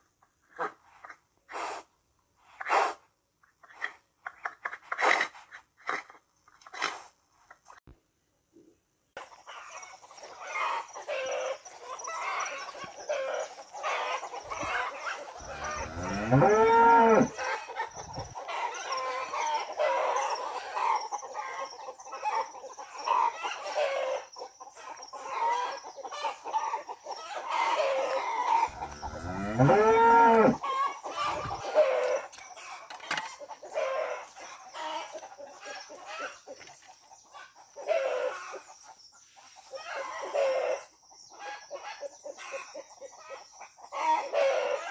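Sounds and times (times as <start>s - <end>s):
hens clucking: 9.2s - 44.9s
cow mooing: 15.4s - 17.4s, 28.7s - 30.6s.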